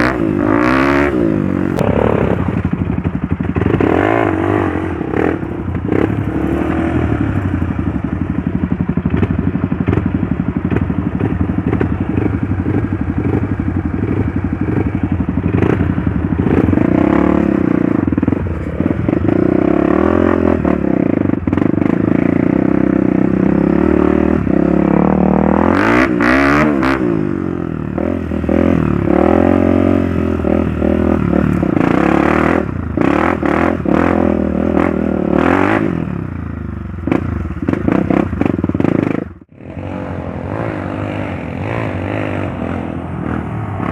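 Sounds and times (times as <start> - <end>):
motorcycle engine revving: 0.0 - 43.9
motorcycle clattering: 1.7 - 20.0.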